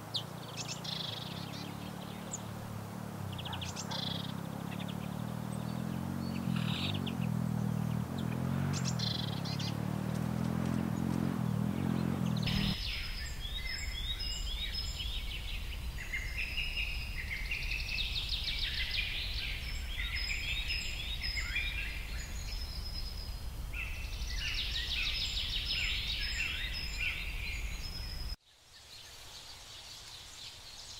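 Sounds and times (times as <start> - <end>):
birds chirping and chattering: 0.0 - 28.4
low city rumble: 0.0 - 28.4
faint hiss: 11.3 - 30.9.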